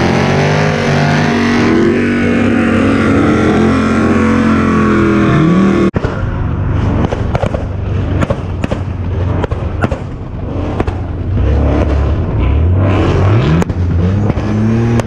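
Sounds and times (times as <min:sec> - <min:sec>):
car engine revving: 0:00.0 - 0:15.0
exhaust pops and bangs: 0:06.8 - 0:12.2.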